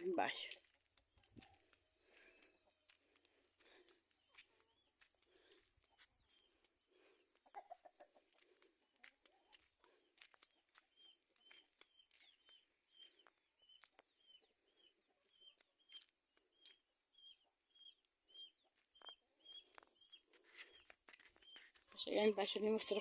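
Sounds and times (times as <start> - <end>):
small bird chirping: 10.4 - 22.2.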